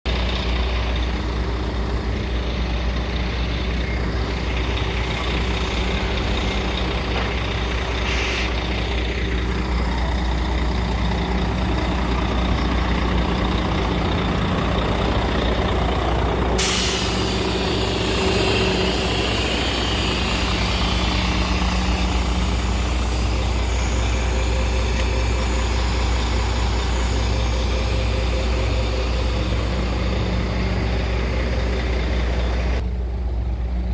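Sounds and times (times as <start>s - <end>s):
truck diesel engine running: 0.0s - 33.9s
air hiss: 7.4s - 8.7s, 16.6s - 31.2s.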